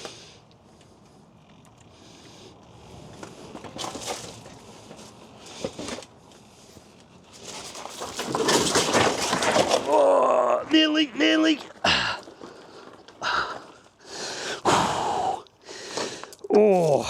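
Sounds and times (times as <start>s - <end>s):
scuffs and shuffling: 3.1s - 10.0s.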